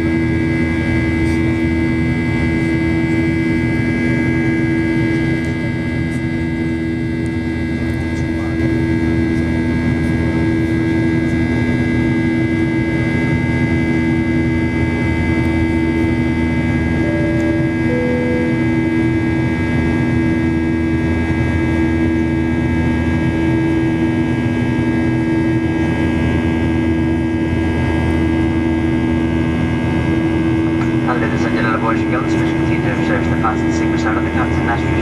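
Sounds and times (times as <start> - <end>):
jet engine and airflow roar: 0.0 - 35.0
steady hum tones: 14.1 - 24.4, 26.0 - 35.0.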